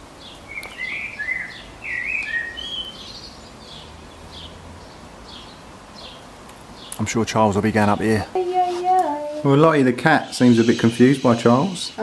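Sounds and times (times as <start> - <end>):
songbird singing: 0.0 - 12.0
bird chirps: 0.2 - 6.2, 10.3 - 12.0.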